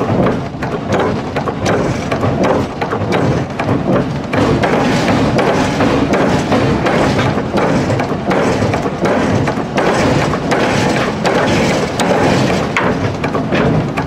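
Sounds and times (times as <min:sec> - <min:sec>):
forging press rumble: 0:00.0 - 0:14.0
heavy thuds: 0:00.0 - 0:14.0.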